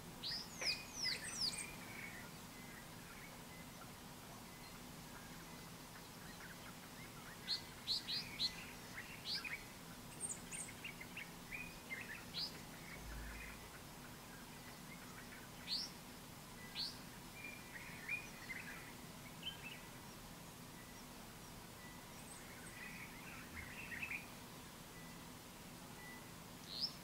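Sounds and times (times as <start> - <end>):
faint steady hiss: 0.0 - 27.0
soft bird twittering: 0.2 - 16.0, 16.6 - 20.2, 20.8 - 25.3, 26.0 - 27.0.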